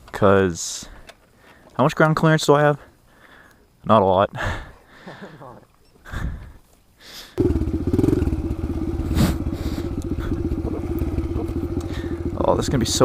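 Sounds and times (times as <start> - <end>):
small motorbike engine running: 7.4 - 13.0.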